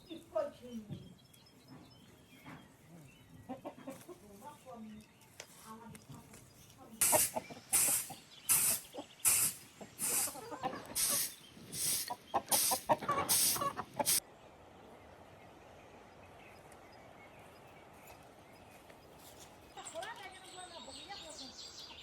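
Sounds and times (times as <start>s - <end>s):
chickens clucking: 0.7s - 5.0s, 5.8s - 14.2s.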